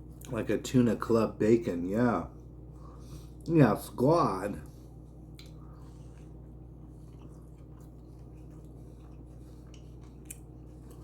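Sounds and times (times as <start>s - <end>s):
chewing sandwich: 4.7s - 11.0s.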